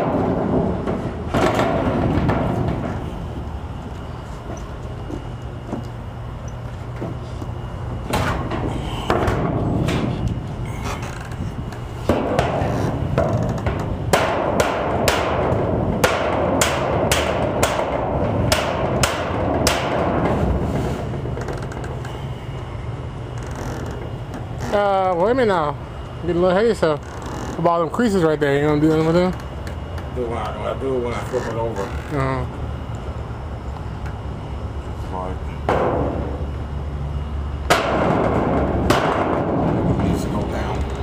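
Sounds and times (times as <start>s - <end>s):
hammer striking metal roof: 0.0s - 3.0s, 12.0s - 20.8s, 35.7s - 36.4s, 37.6s - 40.3s.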